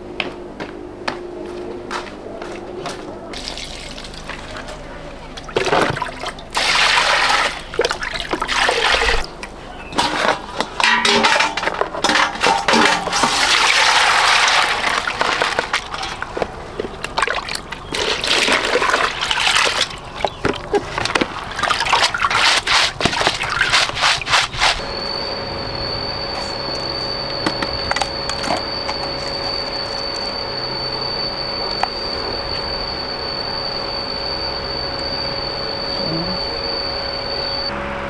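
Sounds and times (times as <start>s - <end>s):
water splashing: 3.3s - 31.2s.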